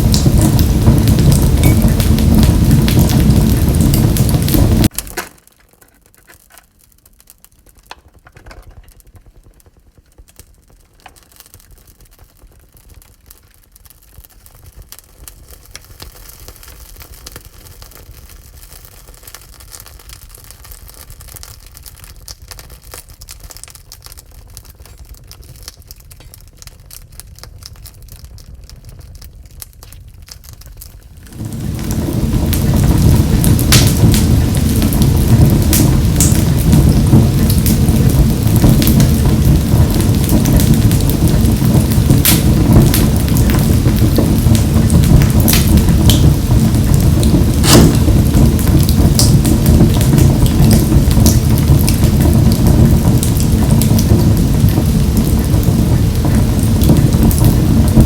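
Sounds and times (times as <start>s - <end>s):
faint low rumble: 0.0s - 4.9s, 24.6s - 58.0s
wood fire crackling in stove: 0.0s - 58.0s
loud rushing noise: 31.3s - 36.2s, 47.3s - 49.7s.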